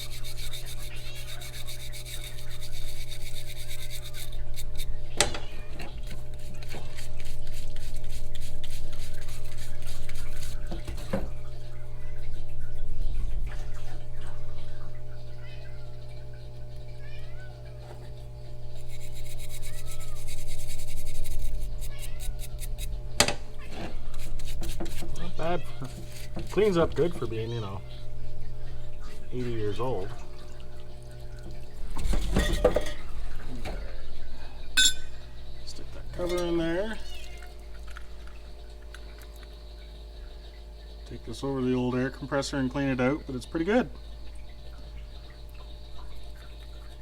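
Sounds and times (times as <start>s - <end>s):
brush scrubbing metal: 0.0s - 5.0s, 5.9s - 11.1s, 18.6s - 23.0s, 23.8s - 27.4s
steady low hum: 0.0s - 47.0s.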